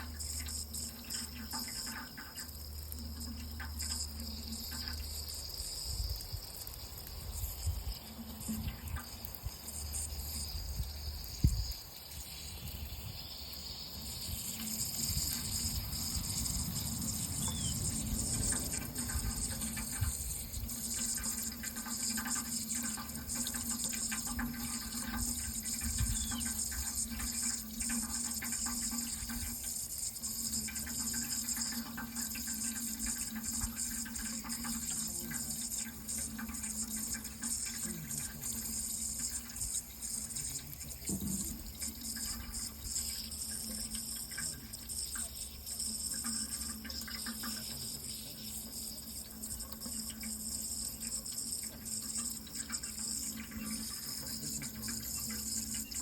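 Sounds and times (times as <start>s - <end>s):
water running: 0.0s - 56.0s.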